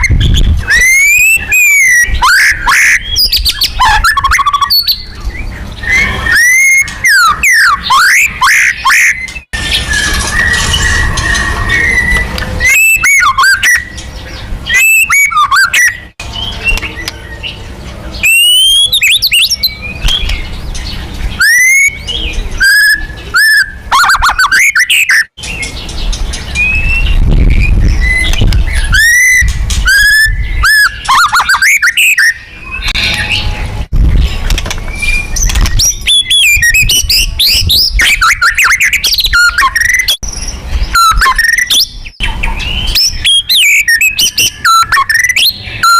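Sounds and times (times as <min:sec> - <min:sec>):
bird singing whistles and trills: 0:00.0 - 0:45.9
low rumble: 0:09.6 - 0:12.8.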